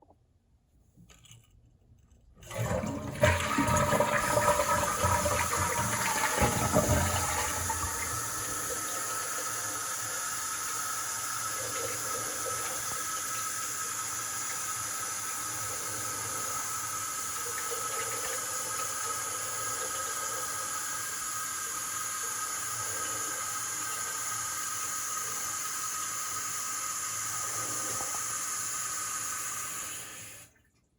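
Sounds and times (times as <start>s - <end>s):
toilet flushing: 2.4s - 30.6s
cistern refilling hiss: 2.5s - 30.5s.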